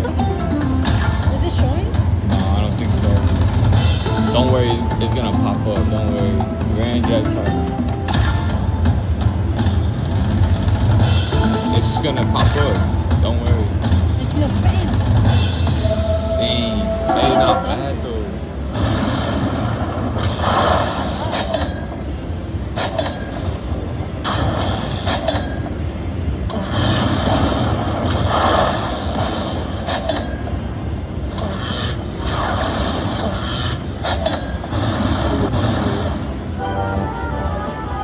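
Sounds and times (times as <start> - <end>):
slot machine spinning: 0.0 - 19.8
casino crowd din: 0.0 - 30.0.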